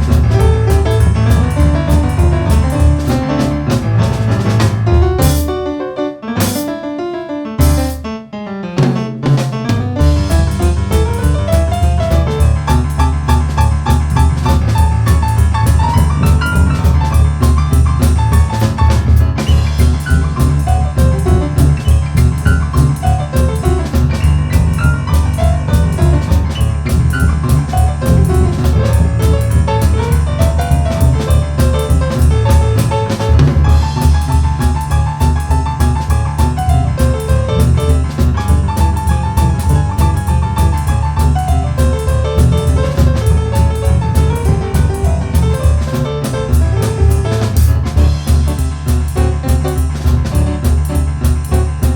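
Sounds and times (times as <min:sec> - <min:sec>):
drum kit: 0:00.0 - 0:08.2, 0:08.8 - 0:51.9
boogie-woogie piano: 0:00.0 - 0:51.9.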